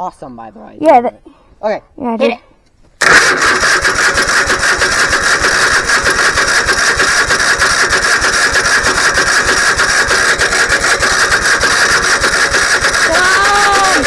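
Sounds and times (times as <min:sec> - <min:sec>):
engine cranking with starter: 0:03.0 - 0:14.0.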